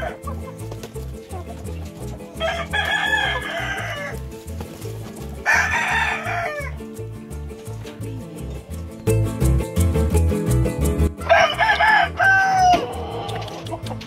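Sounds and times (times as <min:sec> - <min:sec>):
roosters crowing: 0:00.0 - 0:00.6, 0:02.2 - 0:04.4, 0:05.4 - 0:06.8, 0:11.2 - 0:14.0
background music with low beat: 0:00.0 - 0:14.0.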